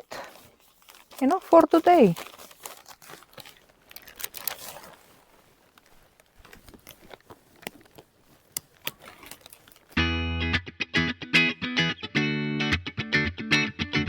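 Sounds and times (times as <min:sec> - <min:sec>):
plastic sheeting crinkling: 0:00.0 - 0:10.0
distorted electric guitar music: 0:10.0 - 0:14.0.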